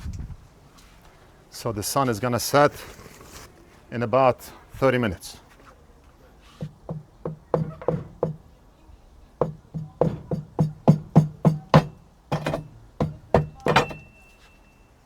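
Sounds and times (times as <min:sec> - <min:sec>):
hollow knocks on filter housing: 0:06.6 - 0:08.5, 0:09.4 - 0:14.2.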